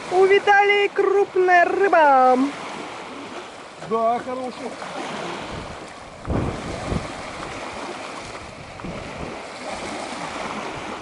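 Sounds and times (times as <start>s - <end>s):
rushing wind and water: 0.0s - 11.0s
wind buffeting microphone: 4.8s - 11.0s.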